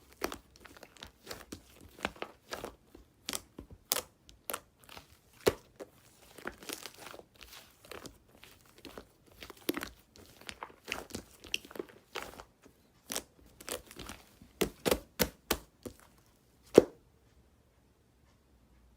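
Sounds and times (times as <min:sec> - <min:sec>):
bread tearing and crunching: 0:00.0 - 0:15.1.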